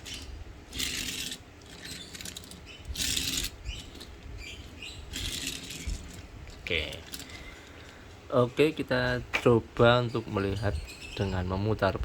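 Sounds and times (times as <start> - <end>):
toy truck wheels rolling and rattling: 0.0 - 7.4.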